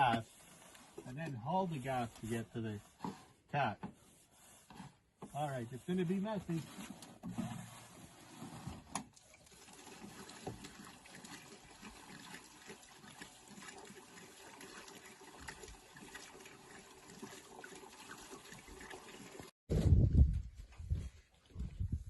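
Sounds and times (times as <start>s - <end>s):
fuel trickling into tank: 9.1s - 19.5s.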